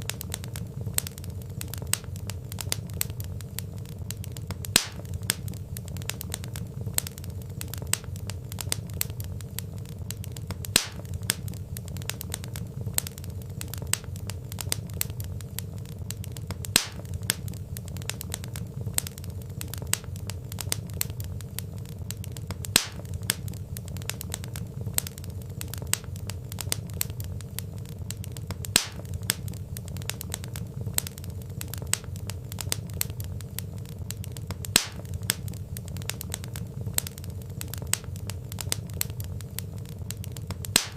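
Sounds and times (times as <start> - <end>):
loud fire pops: 0.0 - 40.9
wood fire crackling: 0.0 - 40.9.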